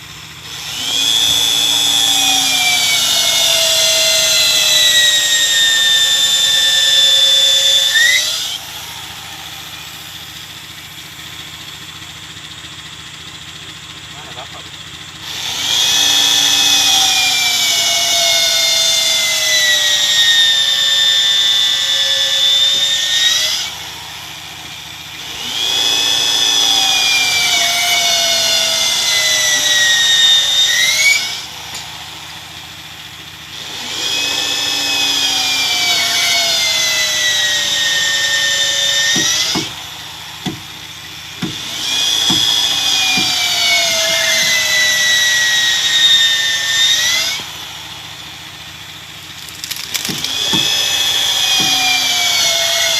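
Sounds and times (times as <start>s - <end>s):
power tool whining on wood: 0.0s - 52.9s
sharp knocks: 39.1s - 39.8s, 40.4s - 40.6s, 41.4s - 43.4s.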